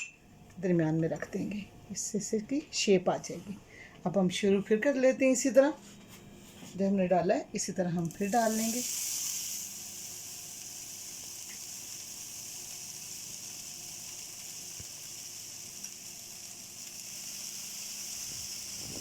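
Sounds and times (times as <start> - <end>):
cheese sizzling in a pan: 8.1 - 19.0.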